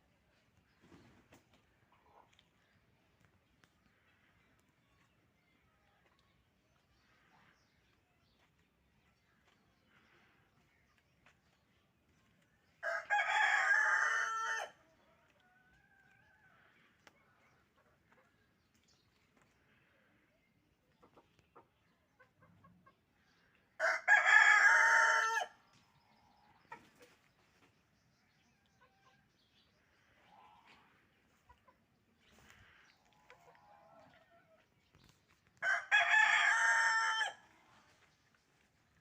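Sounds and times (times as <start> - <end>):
rooster crowing: 12.8 - 14.8, 23.8 - 25.5, 35.6 - 37.5.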